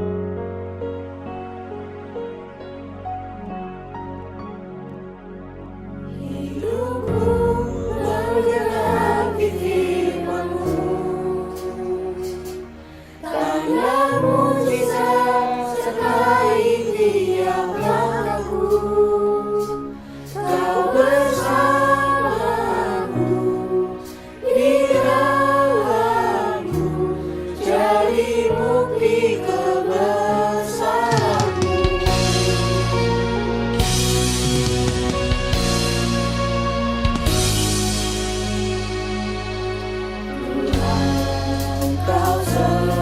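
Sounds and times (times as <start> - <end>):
low accompaniment notes: 2.0 - 19.8
choir singing a slow hymn: 6.1 - 43.0.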